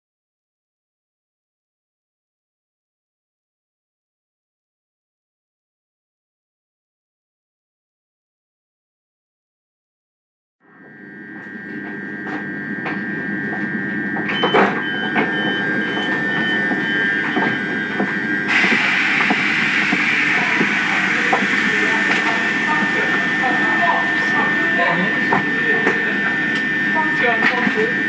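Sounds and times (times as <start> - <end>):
train running: 11.4 - 28.0
steady high tone: 14.2 - 28.0
loud hiss: 18.5 - 25.7
train wheel clicks: 18.5 - 27.9.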